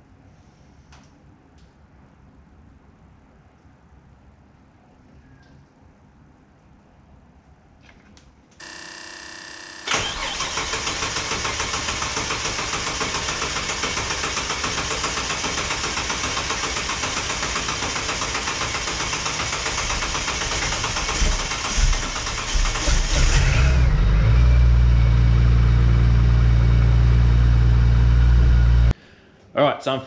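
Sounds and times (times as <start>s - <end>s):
starter motor cranking: 8.6s - 24.3s
car engine idling fast: 9.9s - 28.9s.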